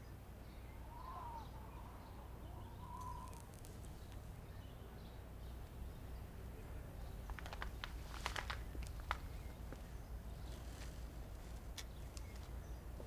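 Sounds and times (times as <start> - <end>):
bird calling: 0.0 - 4.8.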